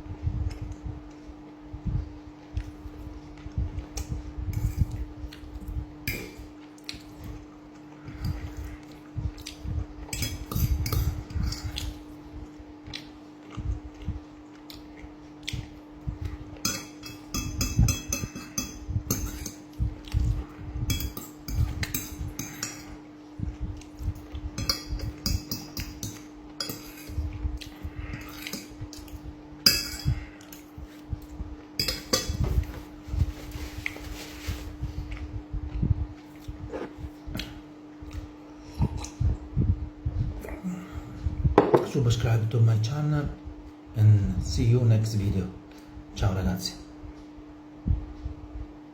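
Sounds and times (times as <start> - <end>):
cutlery scraping a plate: 16.6 - 19.7, 20.9 - 23.0, 24.6 - 27.2, 31.8 - 32.9.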